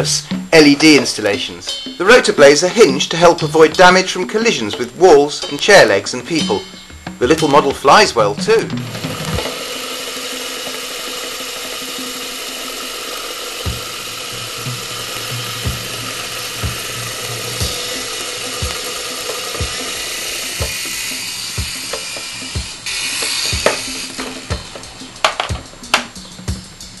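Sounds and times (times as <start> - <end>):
background music with low beat: 0.0 - 12.8, 13.6 - 27.0
toy helicopter motors whining: 8.8 - 25.7.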